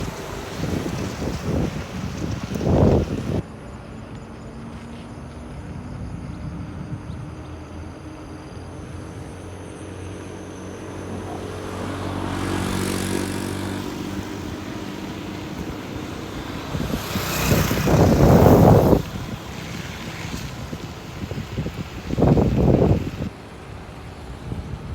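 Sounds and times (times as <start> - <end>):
vehicle engine passing: 0.0 - 3.4, 7.4 - 23.3
wind buffeting microphone: 0.0 - 3.4, 5.1 - 24.9.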